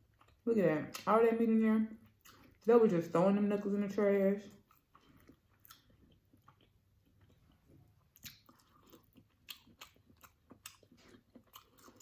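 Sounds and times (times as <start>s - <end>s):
person chewing: 0.0s - 1.1s, 2.0s - 2.6s, 4.5s - 12.0s.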